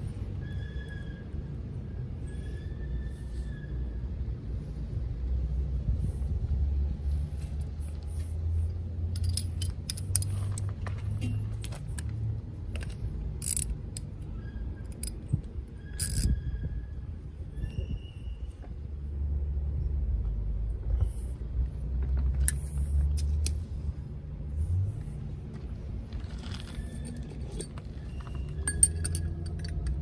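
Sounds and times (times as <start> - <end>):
steady low rumble: 3.1 - 30.0
metal tools clinking: 9.1 - 12.0, 15.9 - 16.4, 26.2 - 30.0.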